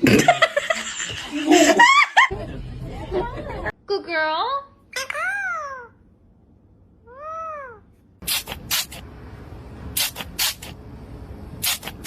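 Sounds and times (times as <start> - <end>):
short harsh noisy bursts: 8.2 - 9.1, 9.9 - 10.8, 11.6 - 12.0.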